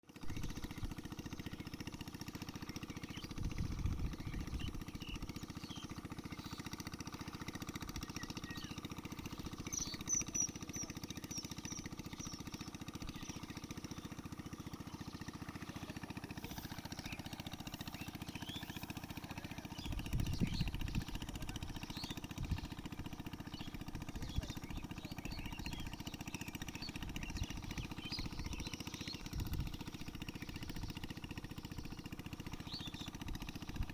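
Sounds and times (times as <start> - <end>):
small engine droning: 0.0 - 33.9
birds chirping: 0.1 - 33.9.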